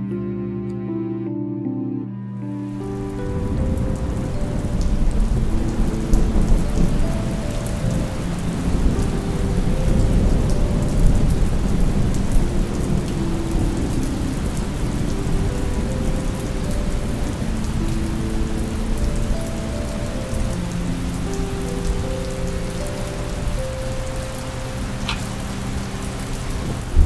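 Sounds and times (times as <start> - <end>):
slow soft melody: 0.0 - 27.0
steady rain: 2.6 - 27.0
rolling thunder rumble: 2.7 - 22.1, 22.8 - 27.0.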